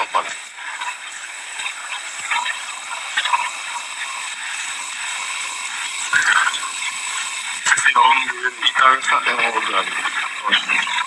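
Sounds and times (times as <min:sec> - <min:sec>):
faint voices: 0:00.0 - 0:01.0, 0:04.8 - 0:11.0.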